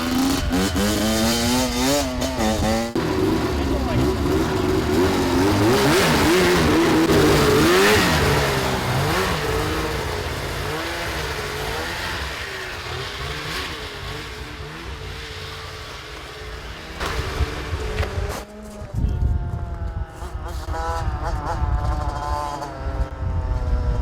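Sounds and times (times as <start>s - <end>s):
engine revving hard: 0.0s - 18.9s.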